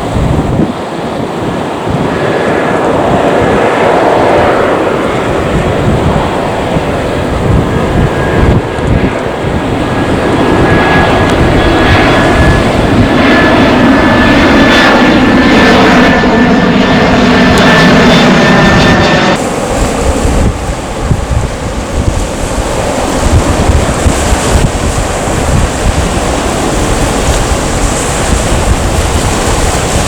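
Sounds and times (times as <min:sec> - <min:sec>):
jet airliner engine whine: 0:00.0 - 0:30.0
wind rumble on microphone: 0:00.0 - 0:30.0.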